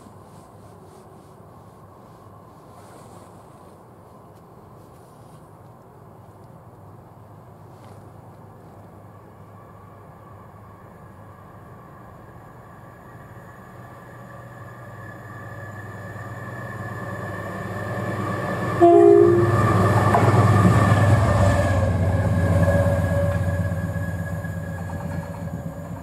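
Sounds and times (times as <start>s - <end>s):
train passing: 0.0s - 26.0s
two-tone train horn: 17.8s - 20.6s.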